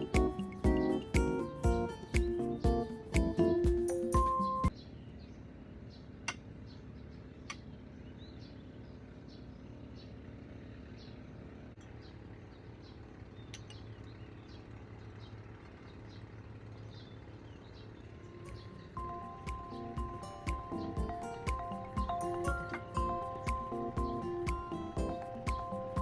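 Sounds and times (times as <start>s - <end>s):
music: 0.0s - 4.7s, 18.3s - 26.0s
low background hum: 4.7s - 26.0s.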